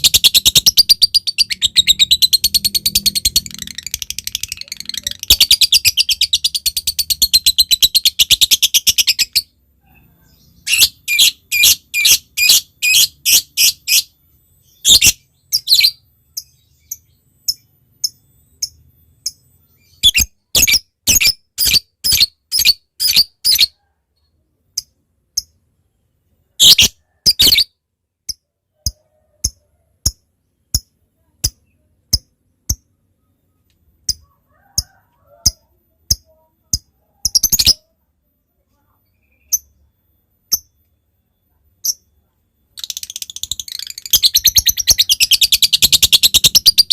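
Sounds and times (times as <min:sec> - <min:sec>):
lovebird sharp high chirps: 0:00.0 - 0:09.5, 0:10.3 - 0:23.8, 0:26.6 - 0:28.4, 0:35.4 - 0:37.9, 0:42.8 - 0:46.9.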